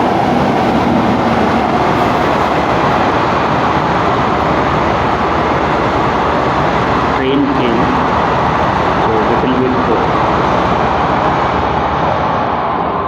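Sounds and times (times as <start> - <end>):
train passing: 0.0 - 13.0
lecturer speaking: 9.1 - 10.1.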